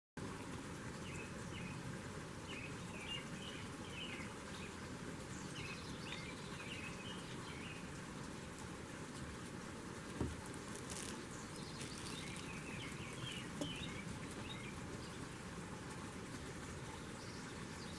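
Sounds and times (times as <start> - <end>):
small birds chirping: 2.5 - 8.0, 10.2 - 17.9.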